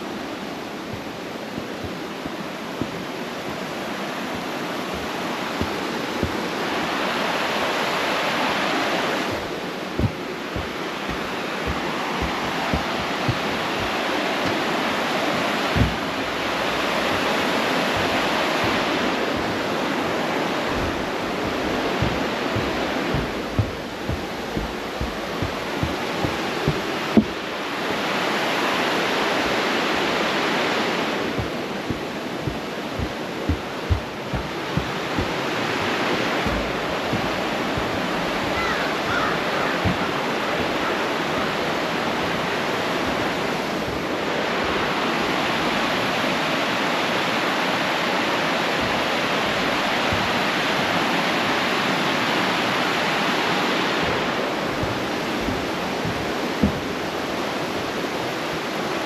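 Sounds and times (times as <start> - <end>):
water rushing over falls: 0.0 - 59.0
low thumps: 0.8 - 8.2, 8.8 - 28.0, 30.8 - 44.9, 48.8 - 50.6, 53.9 - 58.2.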